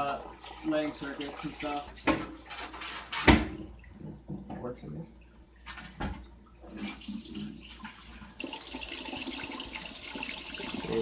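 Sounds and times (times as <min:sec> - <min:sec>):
tap water running into basin: 0:00.0 - 0:04.4, 0:06.6 - 0:11.0.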